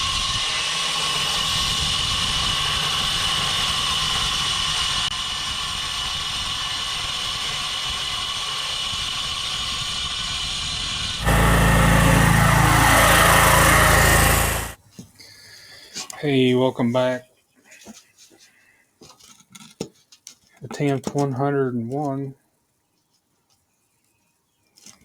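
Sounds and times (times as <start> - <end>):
machine low hum: 11.2 - 14.8.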